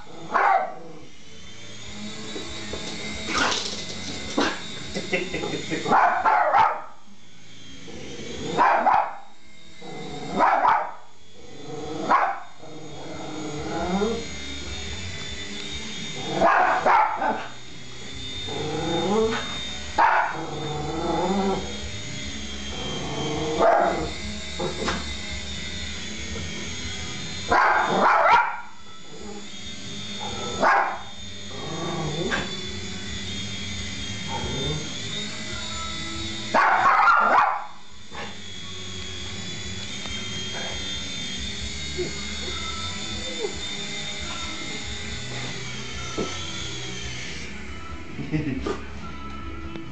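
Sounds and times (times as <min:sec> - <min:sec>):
toy helicopter motor whine: 0:00.0 - 0:49.9
dog barking: 0:00.3 - 0:00.8, 0:05.9 - 0:06.9, 0:08.6 - 0:09.2, 0:10.4 - 0:11.0, 0:12.1 - 0:12.5, 0:16.4 - 0:17.5, 0:20.0 - 0:20.4, 0:27.5 - 0:28.6, 0:30.6 - 0:31.0, 0:36.6 - 0:37.7.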